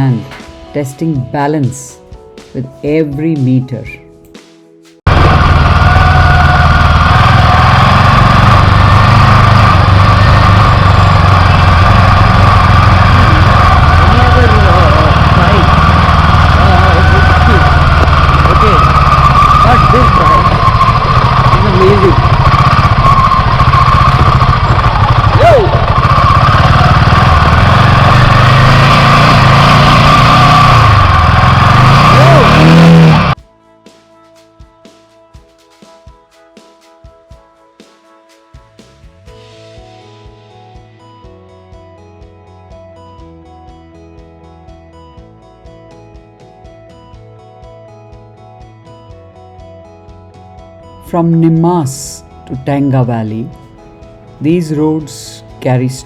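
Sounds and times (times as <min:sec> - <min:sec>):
motorcycle engine running: 0:05.1 - 0:33.4, 0:50.9 - 0:56.0.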